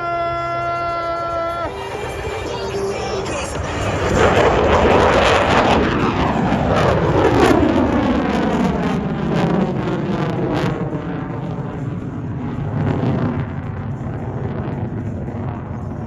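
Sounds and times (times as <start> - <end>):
jet flying past: 0.0 - 16.0.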